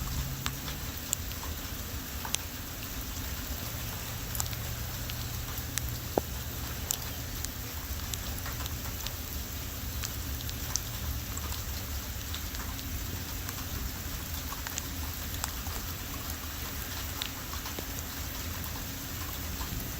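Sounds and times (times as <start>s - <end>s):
low rumble: 0.0s - 1.0s
heavy rain hissing: 0.0s - 19.9s
raindrops ticking on surfaces: 0.0s - 19.9s.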